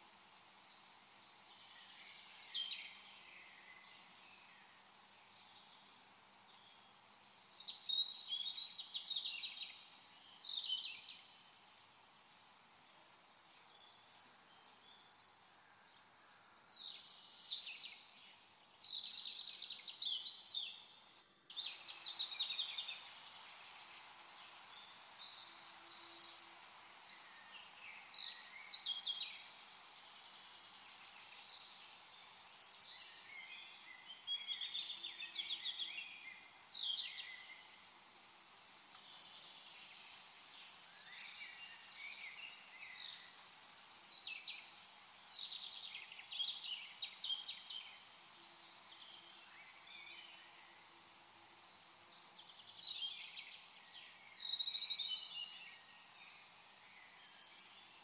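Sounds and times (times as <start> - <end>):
birds singing: 0.0 - 58.0
steady background hiss: 0.0 - 58.0.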